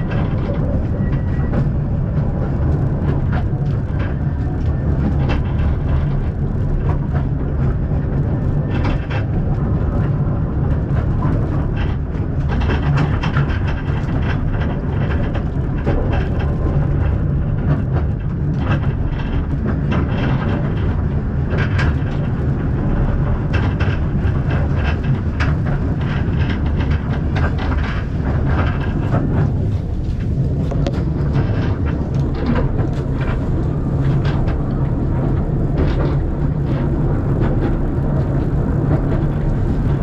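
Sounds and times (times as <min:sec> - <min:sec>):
train carriage rumbling: 0:00.0 - 0:40.0
wheels clicking and rattling: 0:00.0 - 0:40.0.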